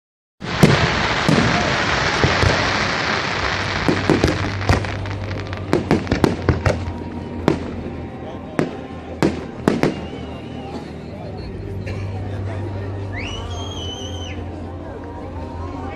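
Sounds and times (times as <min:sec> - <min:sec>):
fireworks bangs and pops: 0:00.4 - 0:07.9, 0:08.6 - 0:10.3
fireworks crackling fizz: 0:00.4 - 0:10.6.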